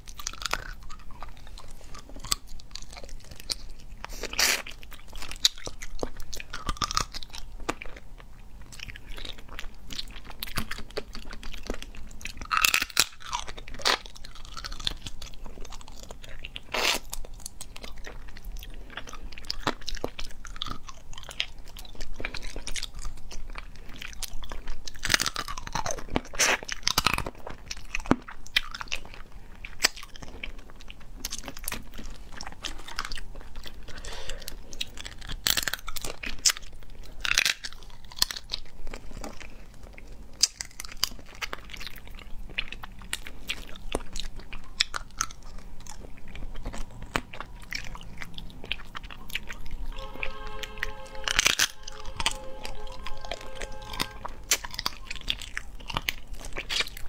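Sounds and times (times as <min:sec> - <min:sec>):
chewing crab shells: 0:00.0 - 0:57.0
shells cracking and crunching: 0:08.9 - 0:23.0.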